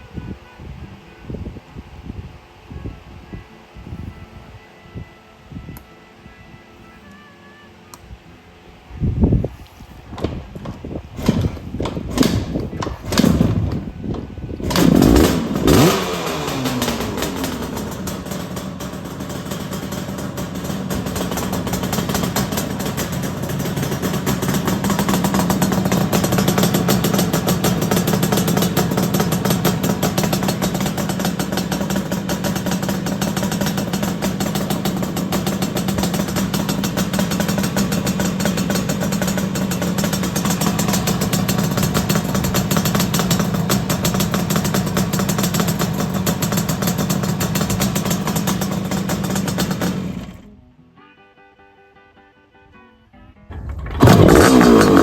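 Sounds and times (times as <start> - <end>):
engine starting knocks: 10.1 - 18.6, 53.5 - 55.0
two-stroke engine revving and idling: 10.2 - 50.5, 53.5 - 55.0.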